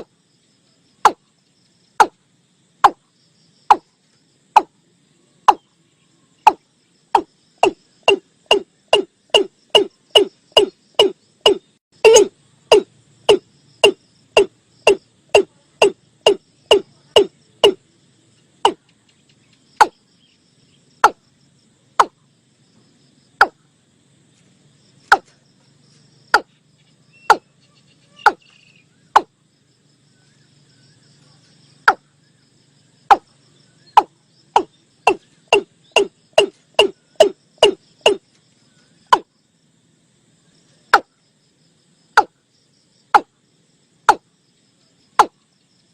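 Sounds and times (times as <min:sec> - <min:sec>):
bird calls hollow downward notes: 0:06.4 - 0:17.8, 0:26.4 - 0:29.3, 0:33.1 - 0:39.3.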